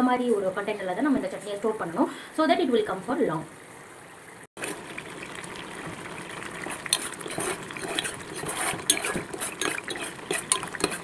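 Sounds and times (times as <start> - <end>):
faint sizzle: 4.6 - 11.0
spoon scraping a cooking pan: 6.6 - 11.0.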